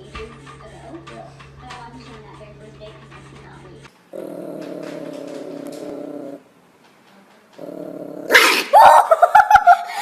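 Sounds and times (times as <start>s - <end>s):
pet animal rumbling: 3.5s - 6.6s, 7.4s - 8.4s.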